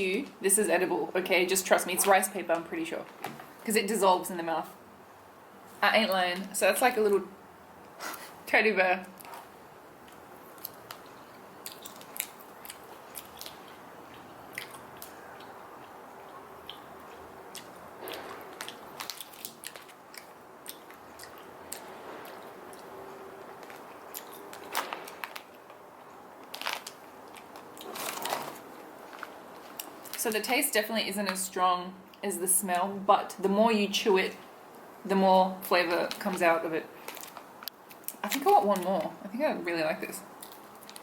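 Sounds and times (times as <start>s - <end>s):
chewing gummy candy: 10.0s - 30.2s.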